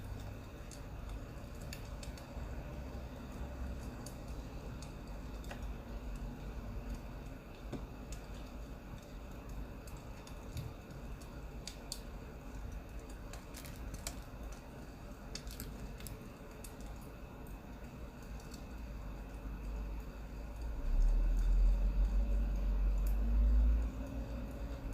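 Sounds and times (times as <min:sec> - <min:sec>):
low steady rumble: 0:00.0 - 0:24.9
wood fire crackling: 0:00.0 - 0:24.9.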